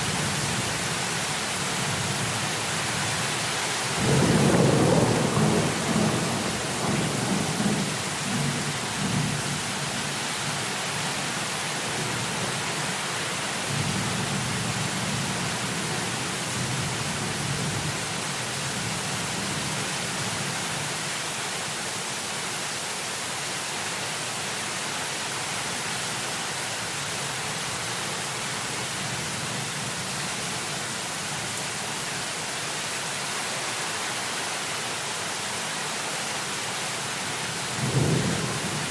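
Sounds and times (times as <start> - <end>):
heavy rain hiss: 0.0 - 38.9
rolling thunder: 4.0 - 8.5, 37.8 - 38.9.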